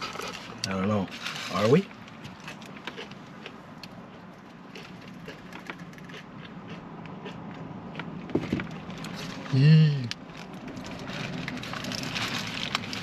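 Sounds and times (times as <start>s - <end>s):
chewing crunchy food: 0.0s - 9.5s.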